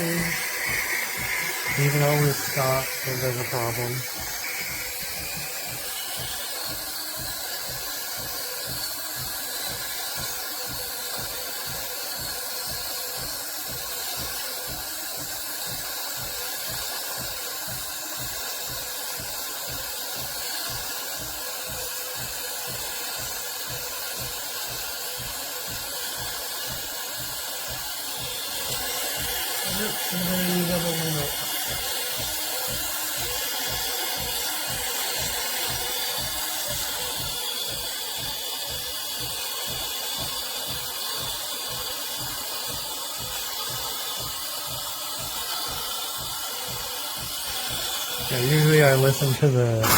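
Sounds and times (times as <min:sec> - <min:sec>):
pump pulsing: 0:00.0 - 0:49.9
steam hissing: 0:00.0 - 0:49.9.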